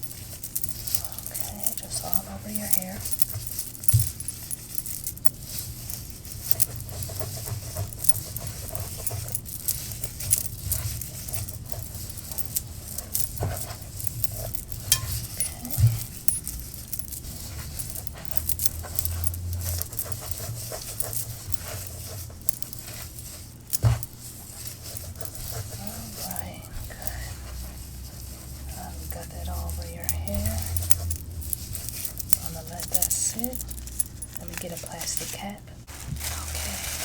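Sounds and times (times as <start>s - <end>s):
gloved hands crackling in hair: 23.2s - 37.0s.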